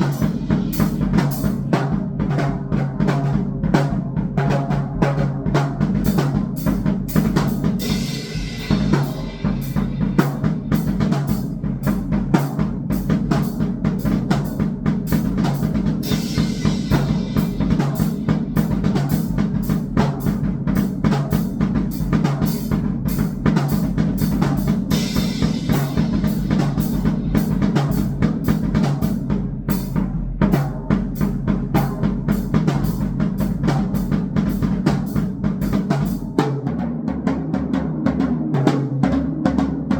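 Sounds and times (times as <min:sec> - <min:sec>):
fast electronic drumming: 0:00.0 - 0:02.9, 0:05.5 - 0:29.1
hissing cymbal washes: 0:07.8 - 0:10.2.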